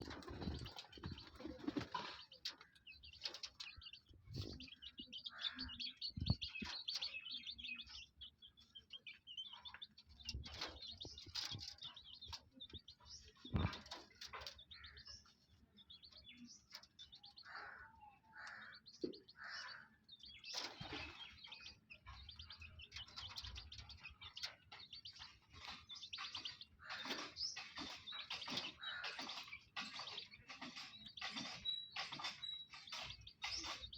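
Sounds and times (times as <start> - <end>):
parrots chirping and calling: 4.4 - 8.1, 17.4 - 20.6, 21.2 - 33.9.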